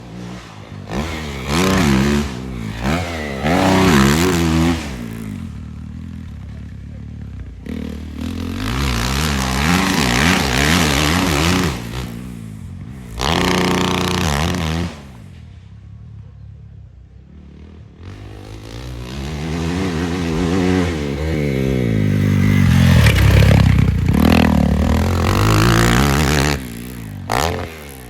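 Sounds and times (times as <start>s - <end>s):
dirt bike engine revving: 0.0s - 15.4s, 17.3s - 28.0s.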